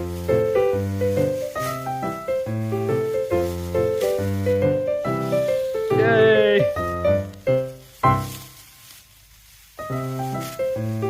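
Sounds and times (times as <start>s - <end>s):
background music: 0.0s - 8.5s.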